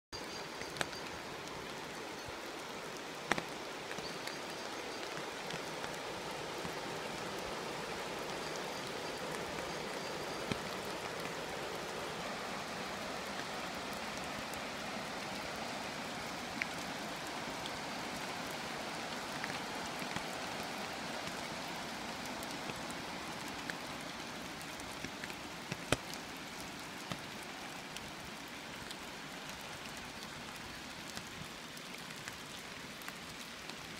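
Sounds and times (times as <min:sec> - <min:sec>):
steady rain hiss: 0:00.2 - 0:33.9
sharp drip tick: 0:03.2 - 0:06.0, 0:24.6 - 0:27.4.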